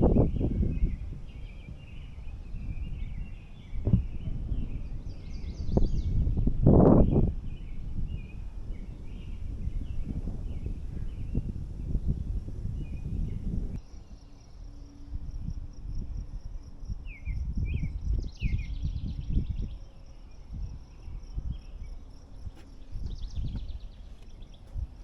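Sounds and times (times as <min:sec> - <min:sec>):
footsteps on dirt trail: 0:22.5 - 0:25.0.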